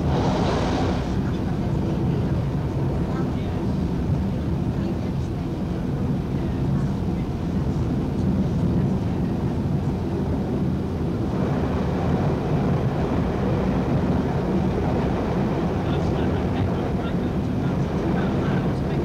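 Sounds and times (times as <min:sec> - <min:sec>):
high rushing noise: 0:00.0 - 0:01.3.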